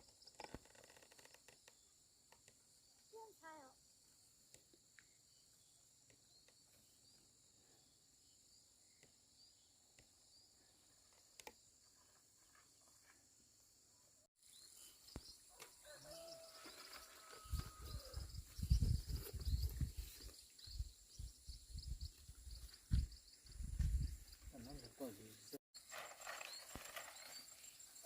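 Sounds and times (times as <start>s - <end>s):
faint chirps: 14.0s - 25.6s.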